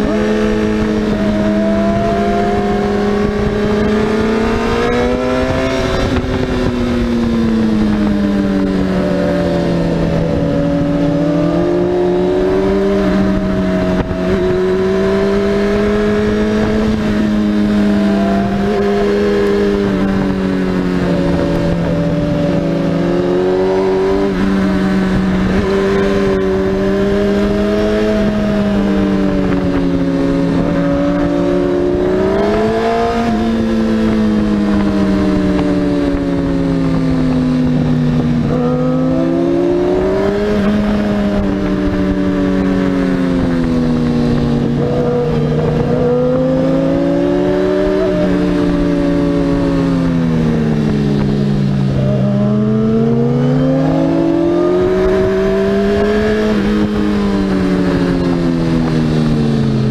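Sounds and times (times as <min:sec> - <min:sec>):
motorcycle engine revving: 0:00.0 - 0:59.9
wind rushing over microphone: 0:00.0 - 0:59.9.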